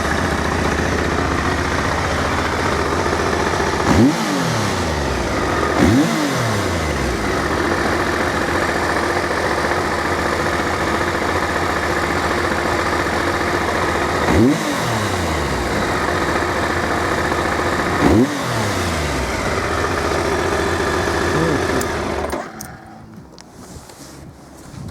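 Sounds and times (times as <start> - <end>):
motorcycle engine idling and revving: 0.0 - 24.6
wind noise: 23.0 - 24.9.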